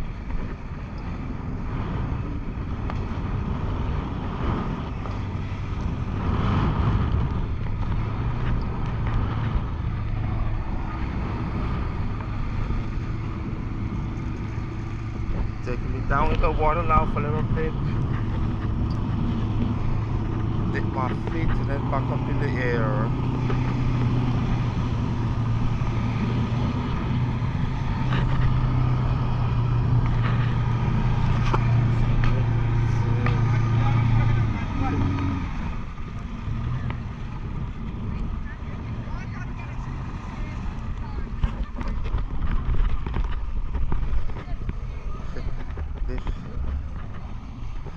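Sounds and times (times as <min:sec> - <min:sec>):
boat motor droning: 0:00.0 - 0:47.9
wind buffeting microphone: 0:00.0 - 0:47.9.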